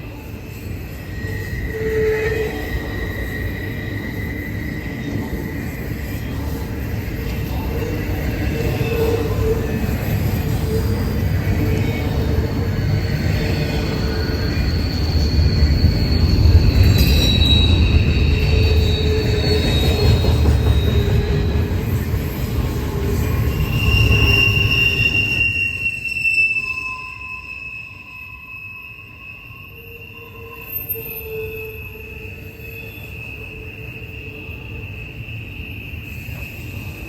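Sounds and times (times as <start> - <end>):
freight train rumbling past: 0.0 - 25.8
train wheels squealing on rails: 0.0 - 37.0.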